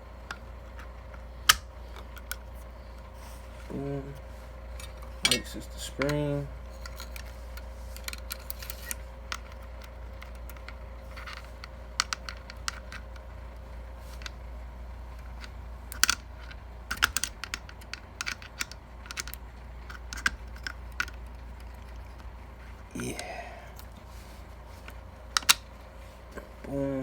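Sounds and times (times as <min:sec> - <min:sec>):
metallic pistol parts clicking: 0:00.3 - 0:02.4, 0:15.4 - 0:22.2, 0:25.4 - 0:25.7.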